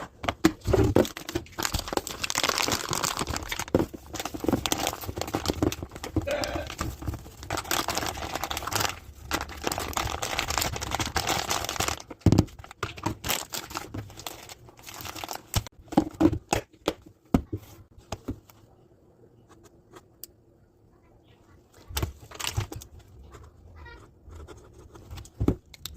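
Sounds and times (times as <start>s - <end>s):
packaging crinkling and rustling: 0.0s - 16.7s, 21.8s - 23.1s.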